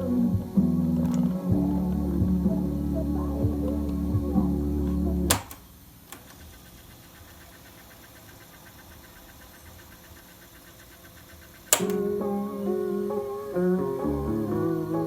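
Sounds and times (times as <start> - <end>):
music playing: 0.0 - 5.4, 11.8 - 15.0
light rapid ticking: 0.0 - 12.4
faint background noise: 0.0 - 15.0.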